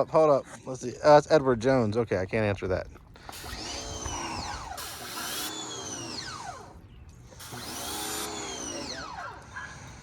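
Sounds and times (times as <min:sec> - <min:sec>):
pressure washer motor winding: 0:03.2 - 0:10.0.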